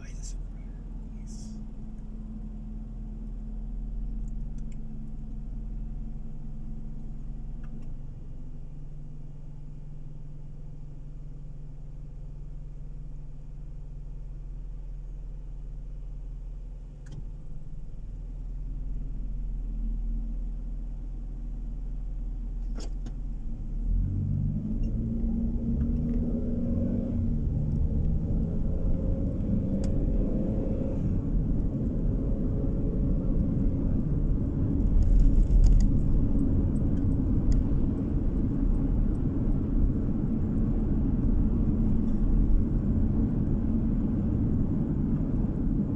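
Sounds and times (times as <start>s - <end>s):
car engine idling: 0.0s - 23.7s
car accelerating: 23.6s - 45.9s
tyre and road noise: 23.9s - 45.3s.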